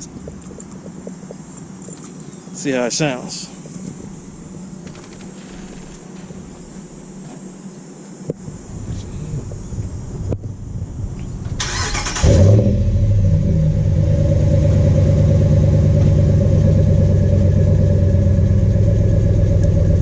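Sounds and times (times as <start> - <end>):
car engine idling: 2.1 - 7.7
starter motor cranking: 2.2 - 7.3, 11.6 - 12.5.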